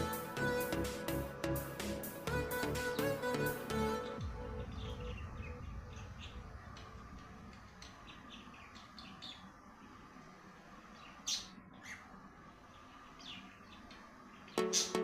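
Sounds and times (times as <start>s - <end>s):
pet birds chirping: 7.8s - 9.5s, 10.9s - 12.1s, 12.7s - 15.0s.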